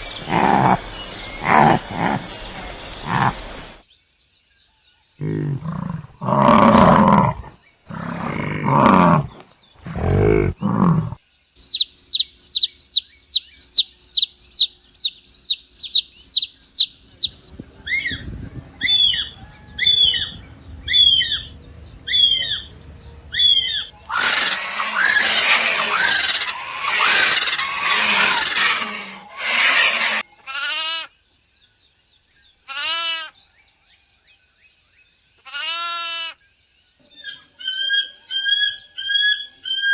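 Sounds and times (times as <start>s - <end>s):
chorus of overlapping animal calls: 0.0s - 3.5s, 5.1s - 31.1s, 37.0s - 39.9s
low rough growling calls: 0.1s - 3.7s, 5.2s - 11.2s, 18.9s - 30.2s
rapid high bird chirping: 10.0s - 17.5s
goat or sheep bleating: 29.6s - 31.1s, 32.7s - 33.3s, 35.4s - 36.4s.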